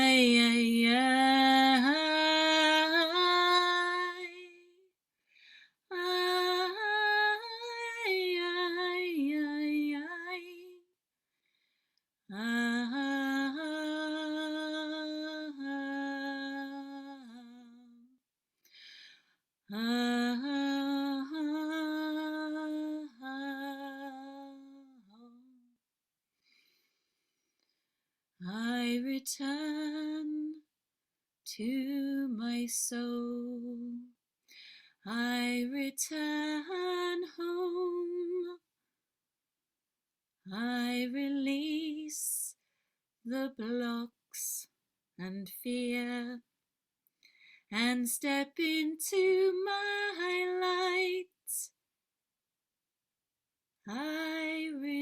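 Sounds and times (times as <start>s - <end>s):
woman singing wordlessly: 0.0s - 4.9s, 5.9s - 10.9s, 12.3s - 18.2s, 19.7s - 25.7s, 28.4s - 30.7s, 31.4s - 34.2s, 35.0s - 38.7s, 40.4s - 42.6s, 43.2s - 46.5s, 47.7s - 51.8s, 53.8s - 55.0s.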